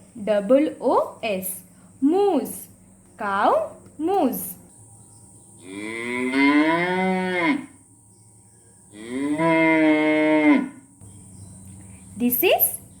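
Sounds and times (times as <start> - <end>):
cow mooing: 5.6 - 7.8, 8.9 - 10.8.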